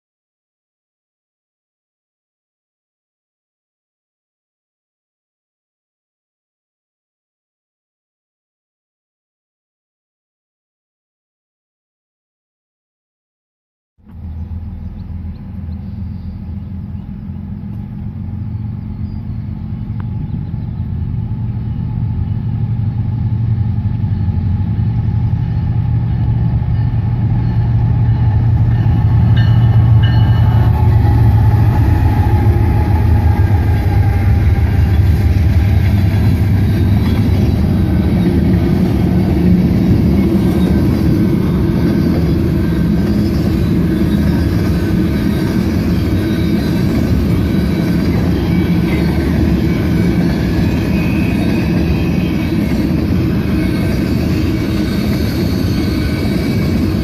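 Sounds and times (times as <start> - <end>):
locomotive engine drone: 14.0 - 57.0
train wheels rumbling on rails: 14.0 - 57.0.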